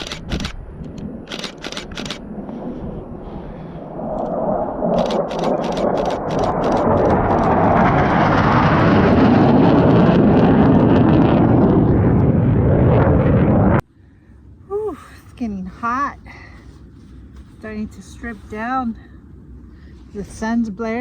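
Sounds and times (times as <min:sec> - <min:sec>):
camera shutter clicks: 0:00.0 - 0:00.6, 0:01.3 - 0:02.2, 0:05.0 - 0:07.0
military jet roaring past: 0:01.0 - 0:13.8.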